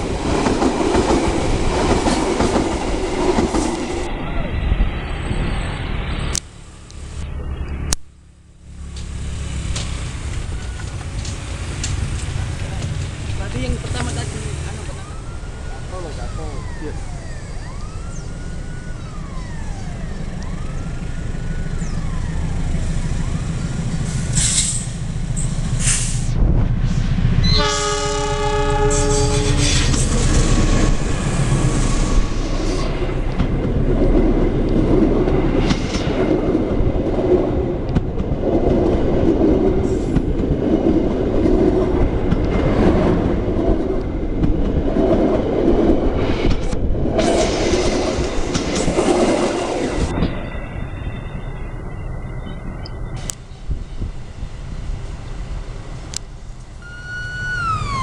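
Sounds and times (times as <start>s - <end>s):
passenger train rumbling past: 0.0s - 58.0s
wailing warning tone: 14.2s - 24.0s, 56.8s - 58.0s
locomotive horn: 27.4s - 30.1s.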